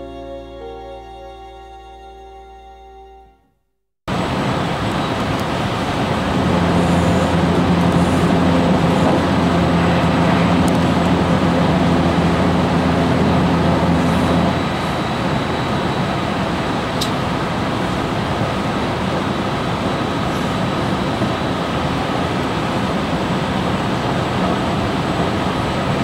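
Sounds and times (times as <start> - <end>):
steady hum: 4.1 - 26.0
train running rumble: 4.1 - 26.0.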